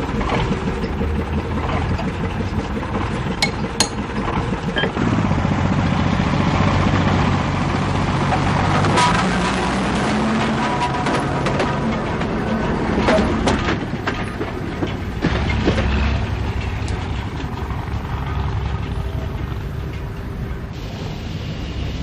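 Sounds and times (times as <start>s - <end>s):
deep drone: 0.0s - 22.0s
engine running: 0.0s - 22.0s.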